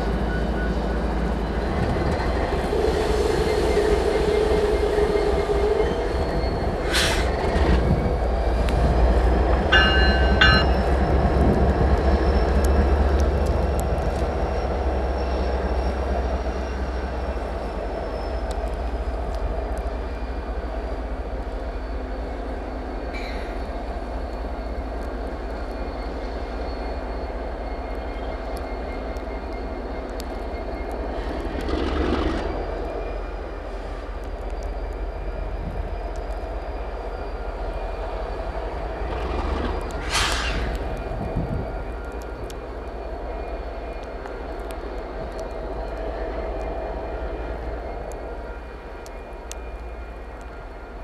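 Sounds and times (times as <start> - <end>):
diesel locomotive engine drone: 0.0 - 51.0
brief noisy swells: 40.0 - 41.2.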